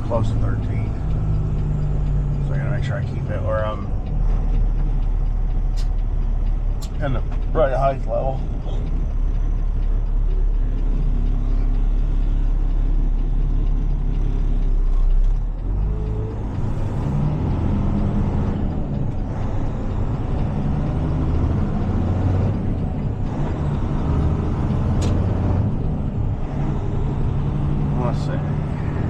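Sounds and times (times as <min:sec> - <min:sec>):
diesel truck engine running: 0:00.0 - 0:29.0
sharp click: 0:03.9 - 0:07.5, 0:24.2 - 0:25.3.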